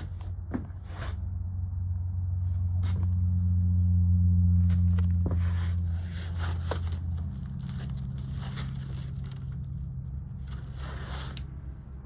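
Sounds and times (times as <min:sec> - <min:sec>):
low hum: 0:00.0 - 0:12.0
paper rustling and crinkling: 0:05.4 - 0:11.5.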